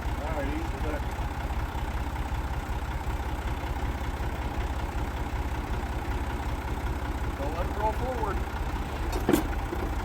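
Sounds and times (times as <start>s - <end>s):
tractor engine idling: 0.0s - 10.0s.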